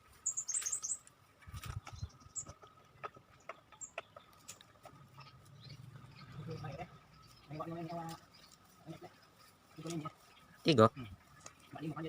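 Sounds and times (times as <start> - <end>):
high bird chirps: 0.2 - 1.0.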